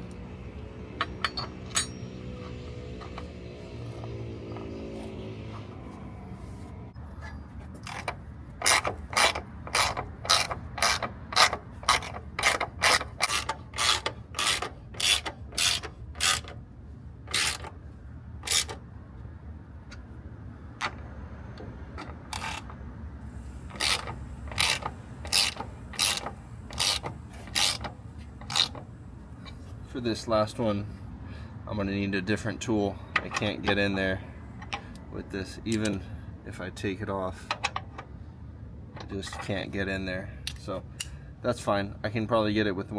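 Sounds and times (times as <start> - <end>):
ratchet wrench rattling: 7.8 - 16.6, 22.0 - 29.6.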